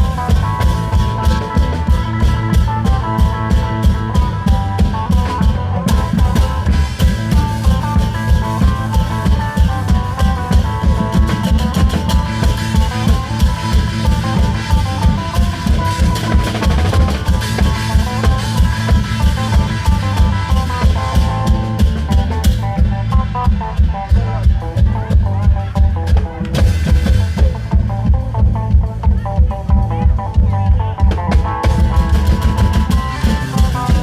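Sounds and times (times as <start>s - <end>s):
driving drum beat: 0.0s - 34.0s
long-drum band playing: 0.0s - 34.0s.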